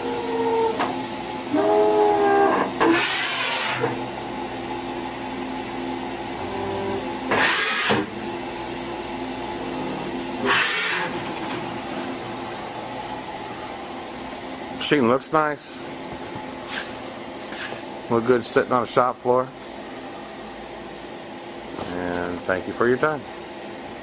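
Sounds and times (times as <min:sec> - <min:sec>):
machine hum: 0:00.0 - 0:22.4.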